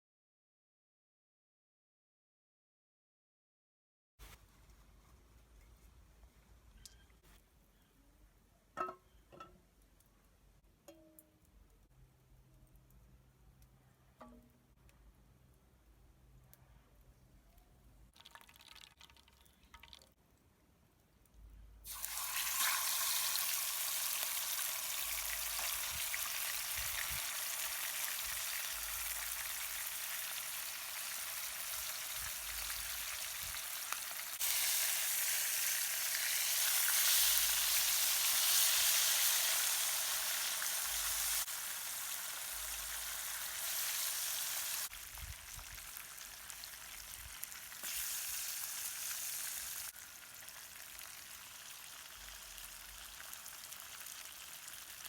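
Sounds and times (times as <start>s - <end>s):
fish sizzling in hot oil: 21.9s - 55.0s.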